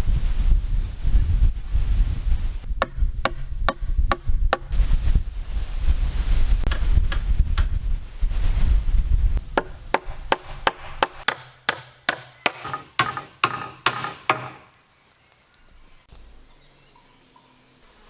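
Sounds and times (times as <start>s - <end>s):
hand tool striking wood: 2.8s - 4.8s, 6.7s - 7.8s, 9.5s - 14.8s.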